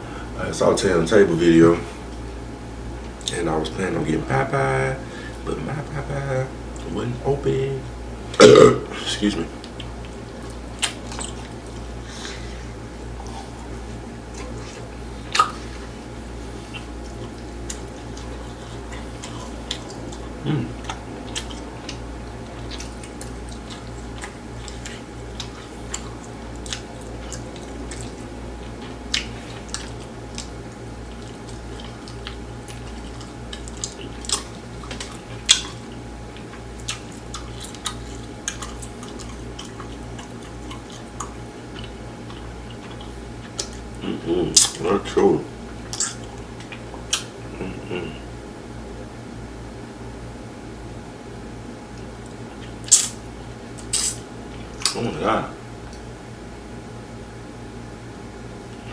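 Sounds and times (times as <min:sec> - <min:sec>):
steady low hum: 0:00.0 - 0:58.9
chewing and mouth sounds: 0:08.3 - 0:48.3, 0:51.9 - 0:55.2.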